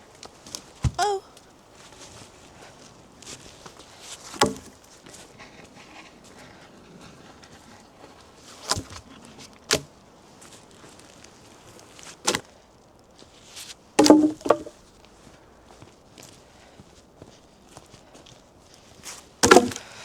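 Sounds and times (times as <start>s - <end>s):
sharp wooden knocks: 4.4s - 4.7s, 14.0s - 14.7s, 19.4s - 19.8s.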